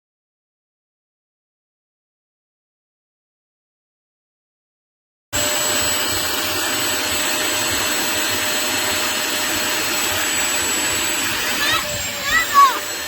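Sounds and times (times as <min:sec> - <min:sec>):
spot cleaner suction motor whining: 0:05.4 - 0:13.0.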